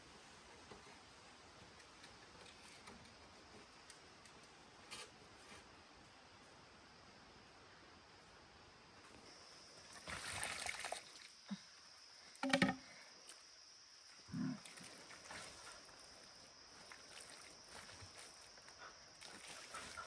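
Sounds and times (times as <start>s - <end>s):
low animal call: 14.3s - 14.7s.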